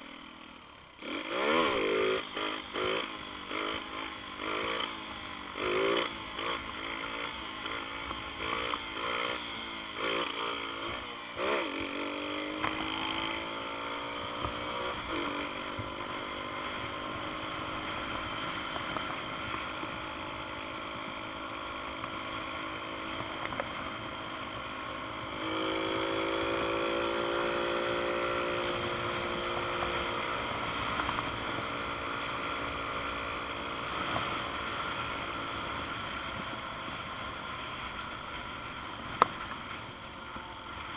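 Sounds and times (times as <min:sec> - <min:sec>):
motorbike engine revving: 0:00.0 - 0:21.2, 0:22.0 - 0:38.0.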